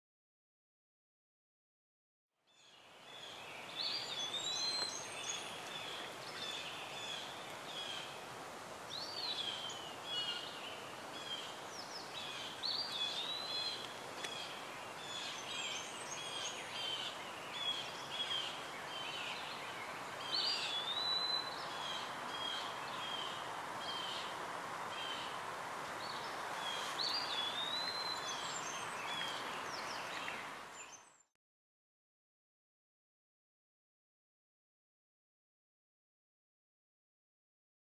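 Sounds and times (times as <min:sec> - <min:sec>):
outdoor background hiss: 0:02.4 - 0:31.2
birds chirping: 0:02.5 - 0:08.2, 0:08.9 - 0:31.3.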